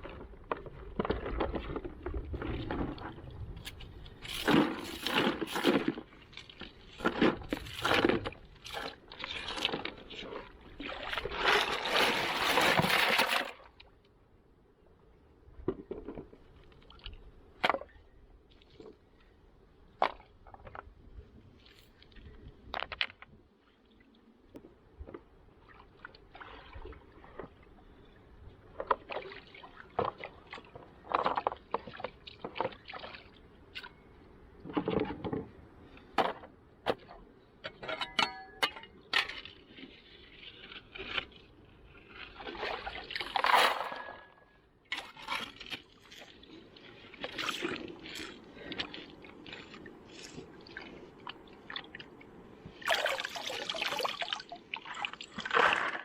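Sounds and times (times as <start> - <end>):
water splashing: 42.0 - 56.0.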